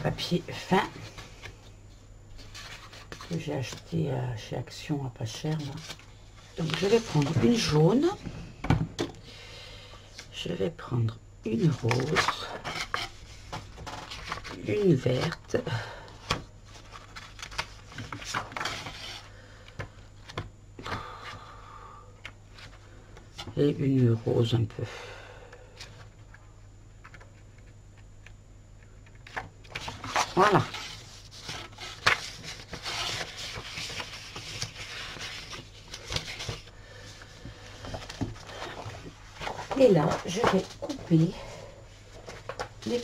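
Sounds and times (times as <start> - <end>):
paper rustling: 2.3 - 4.0, 5.3 - 8.0, 11.6 - 15.5, 16.3 - 19.3, 29.2 - 41.3, 42.1 - 43.0.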